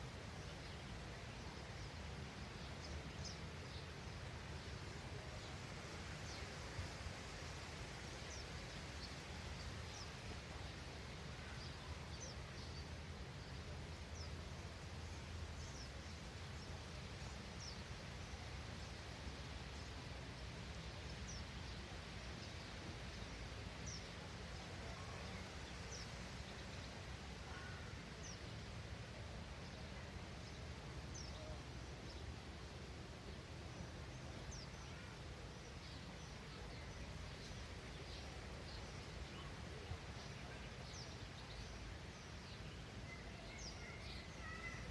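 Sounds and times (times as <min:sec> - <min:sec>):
outdoor hiss and rumble: 0:00.0 - 0:44.9
small birds chirping: 0:33.7 - 0:44.9.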